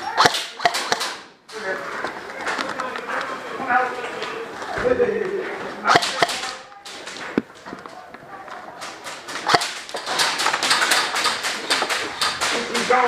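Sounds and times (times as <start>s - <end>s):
airsoft guns firing: 0.0s - 1.3s, 5.9s - 7.3s, 8.8s - 13.0s
faint voices: 0.0s - 13.0s.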